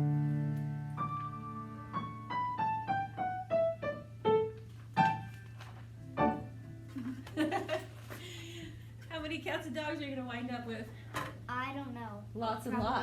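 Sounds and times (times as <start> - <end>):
piano chords and notes: 0.0 - 7.0.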